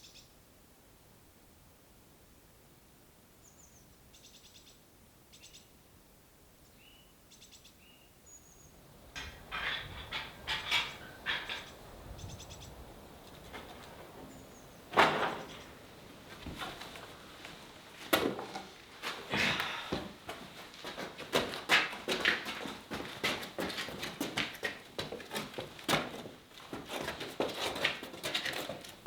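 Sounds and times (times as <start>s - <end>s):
small birds chirping and trilling: 10.9s - 13.5s.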